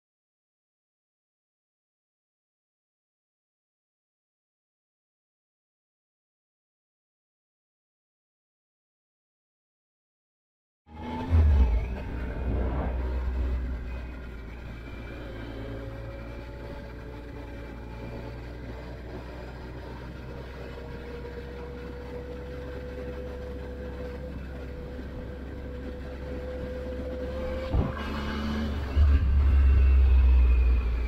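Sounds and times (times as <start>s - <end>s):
motorcycle engine running: 10.9s - 31.0s.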